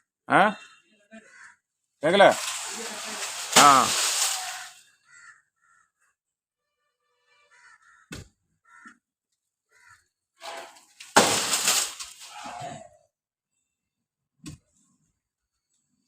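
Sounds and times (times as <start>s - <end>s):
crows cawing: 1.2s - 1.6s, 2.3s - 6.1s, 7.5s - 9.0s, 9.7s - 12.8s
crash of breaking and rustling: 2.4s - 4.7s, 10.4s - 12.4s.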